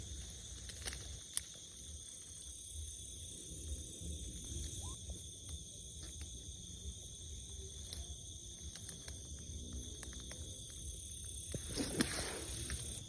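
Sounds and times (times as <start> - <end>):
insects buzzing: 0.0 - 13.0
rustle: 11.3 - 13.0.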